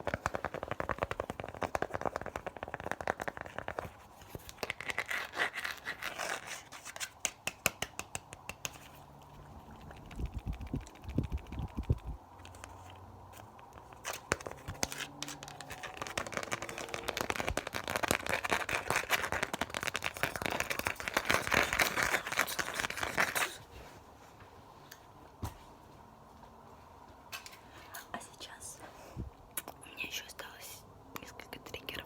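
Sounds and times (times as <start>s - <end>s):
crinkling and scratching: 0.0s - 24.0s.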